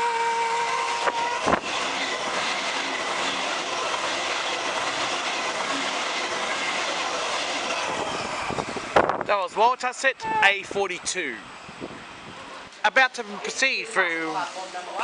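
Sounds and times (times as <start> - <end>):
train horn: 0.0 - 1.7
electric train passing at speed: 0.0 - 15.0.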